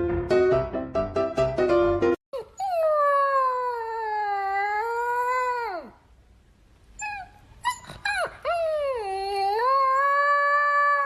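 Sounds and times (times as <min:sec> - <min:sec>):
dog howling and yipping: 0:07.0 - 0:11.0.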